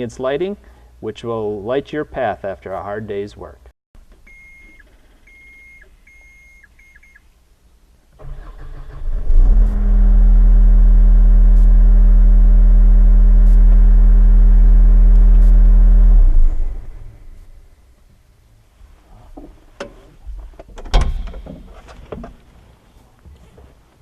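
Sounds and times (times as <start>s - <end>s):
short electronic beeps: 4.3s - 7.2s
diesel engine cranking and running: 8.2s - 11.5s.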